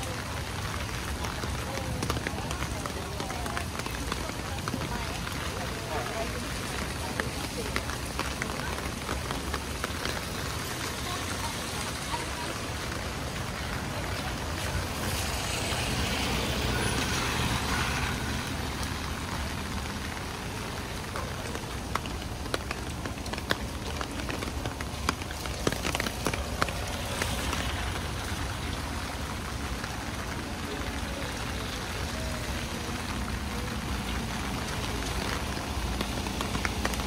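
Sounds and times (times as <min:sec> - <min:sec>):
rain on a wet street: 0:00.0 - 0:37.0
sharp drips: 0:00.0 - 0:37.0
traffic rumble: 0:00.0 - 0:37.0.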